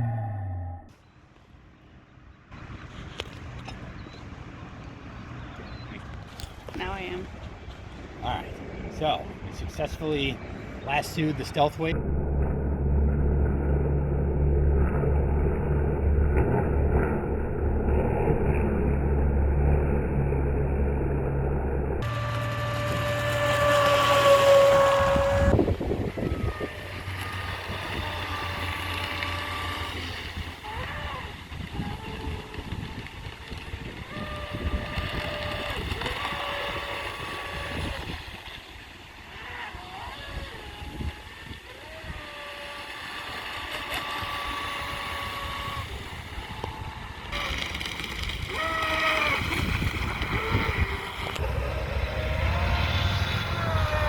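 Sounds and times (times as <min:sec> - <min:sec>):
electric boat motor whining: 0:11.0 - 0:54.0.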